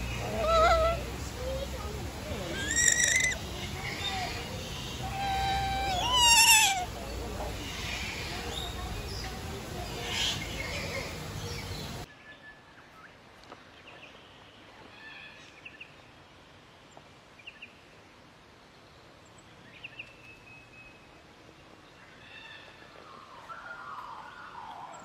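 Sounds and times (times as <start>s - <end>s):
parrots squawking harshly: 0.2s - 1.0s, 2.5s - 4.0s, 4.8s - 7.0s.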